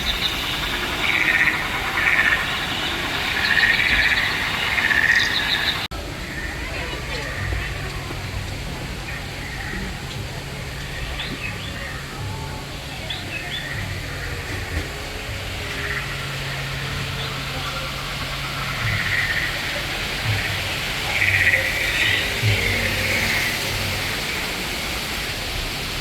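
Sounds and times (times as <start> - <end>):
high chirps: 0.0 - 5.9
steady low hum: 0.0 - 6.8, 7.6 - 26.0
faint distant voices: 0.0 - 26.0.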